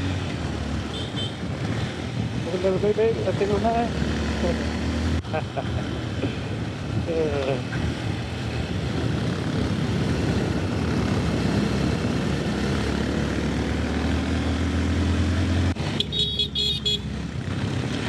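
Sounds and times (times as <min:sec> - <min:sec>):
motorcycle engine accelerating: 0:00.0 - 0:05.4, 0:08.0 - 0:16.0
wind noise on microphone: 0:01.3 - 0:02.7, 0:06.2 - 0:12.7.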